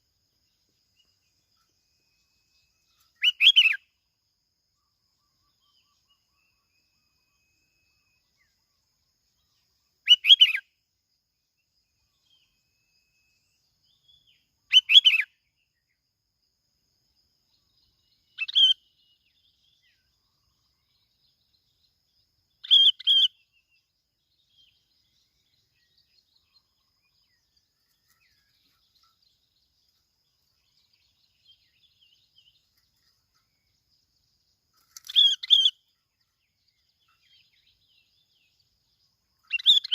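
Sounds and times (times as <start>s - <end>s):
bird calling in bright phrases: 2.9s - 3.9s, 10.0s - 10.7s, 14.0s - 15.4s, 18.3s - 19.2s, 22.6s - 23.8s, 34.8s - 36.4s, 39.4s - 39.9s.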